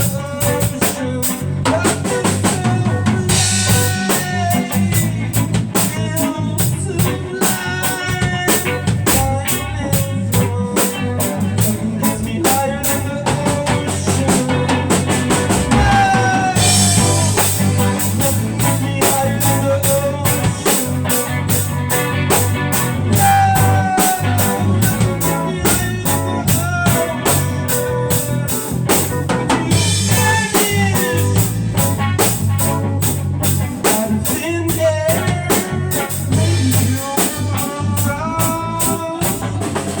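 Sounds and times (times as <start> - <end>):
drum kit beat: 0.0 - 40.0
low bass line: 0.0 - 40.0
sliding melody: 11.7 - 37.0.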